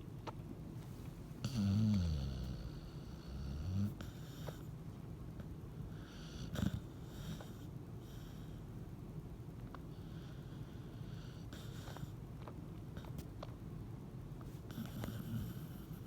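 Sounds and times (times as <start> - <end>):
dog snoring: 1.4 - 4.7, 5.9 - 8.6, 9.7 - 13.2, 14.5 - 16.0.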